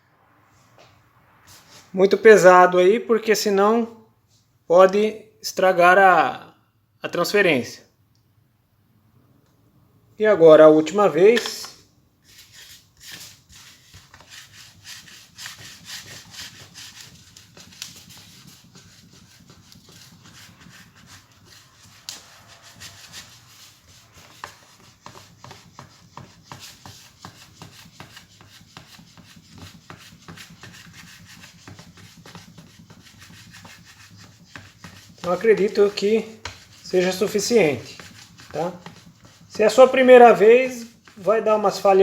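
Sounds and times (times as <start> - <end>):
iron rubbing over paper: 10.9 - 42.0.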